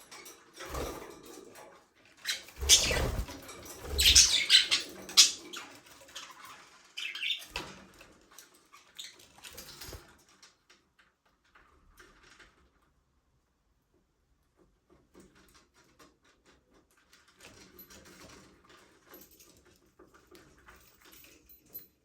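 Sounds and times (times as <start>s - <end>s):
budgerigars chirping: 2.3s - 3.3s, 3.9s - 5.5s
wing flutters and thumps: 2.6s - 4.6s.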